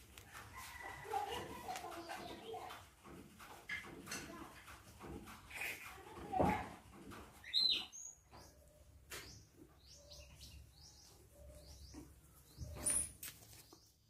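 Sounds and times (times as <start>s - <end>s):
small birds chirping: 0.7s - 3.0s, 5.4s - 14.0s.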